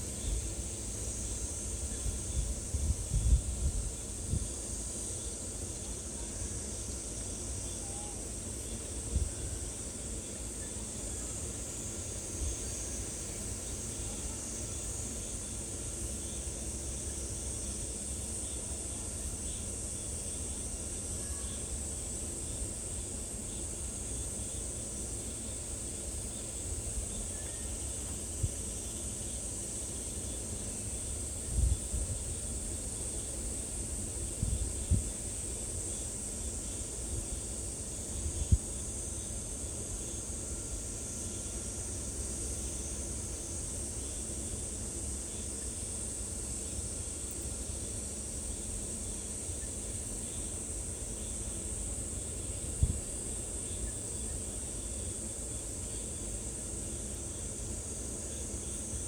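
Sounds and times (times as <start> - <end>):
high-pitched insect chorus: 0.0 - 59.0
wind rumble on microphone: 1.9 - 4.6, 31.4 - 32.7, 34.2 - 35.2, 38.1 - 38.7, 52.6 - 53.2.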